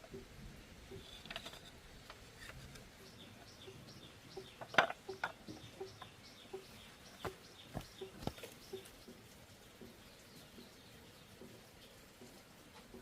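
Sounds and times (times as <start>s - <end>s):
bird chirping: 2.7s - 12.4s.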